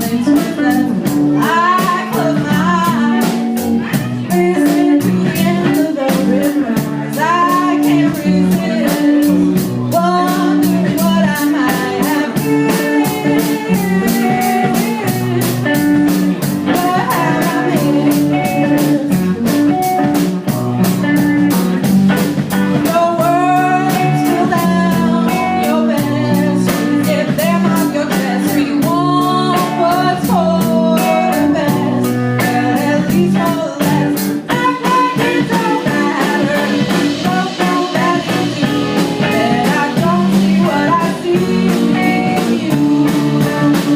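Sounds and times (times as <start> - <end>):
electric guitar lead line: 0.0 - 43.9
live band playing blues: 0.0 - 43.9.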